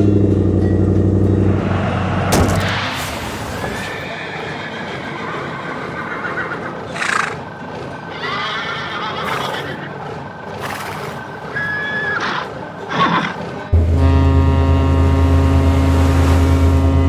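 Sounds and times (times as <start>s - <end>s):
steady background noise: 1.0s - 13.8s.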